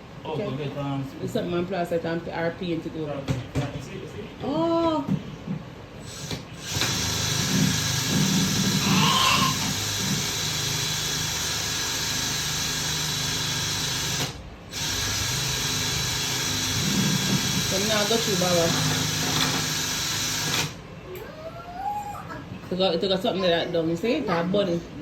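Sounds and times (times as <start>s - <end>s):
power drill boring into wall: 6.1s - 20.8s.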